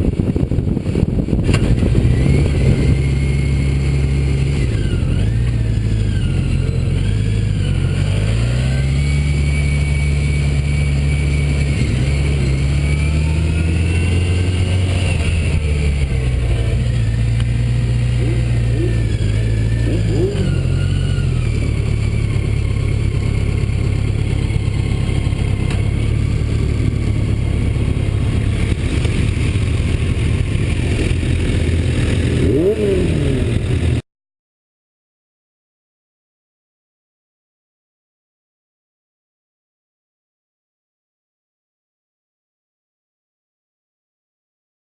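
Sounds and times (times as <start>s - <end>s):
wind noise: 0.0s - 5.4s
motorcycle engine shifting gears: 0.0s - 34.0s.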